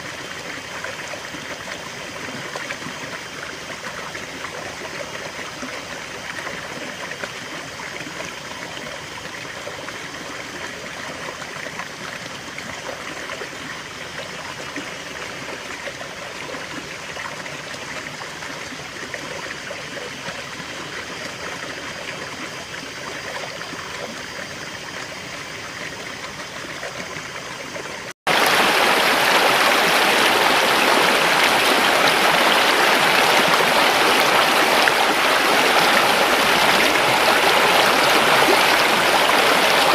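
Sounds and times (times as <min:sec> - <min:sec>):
river water flowing: 0:00.0 - 0:39.9
loud bright water rush: 0:28.3 - 0:39.9.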